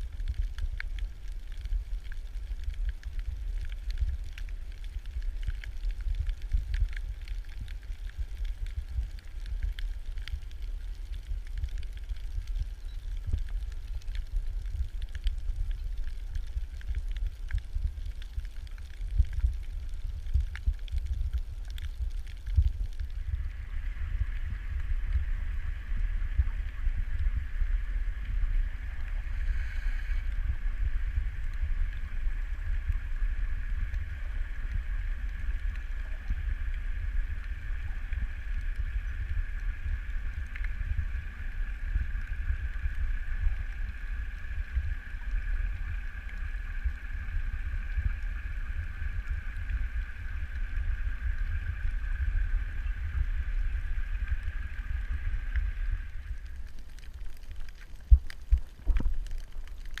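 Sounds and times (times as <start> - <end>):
underwater rumble of moving water: 0.0 - 60.0
boat engine whine underwater: 23.2 - 56.6.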